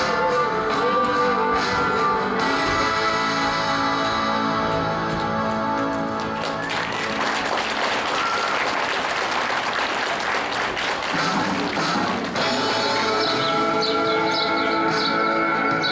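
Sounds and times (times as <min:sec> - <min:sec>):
dance music: 0:00.0 - 0:15.9
audience applauding: 0:05.0 - 0:13.3.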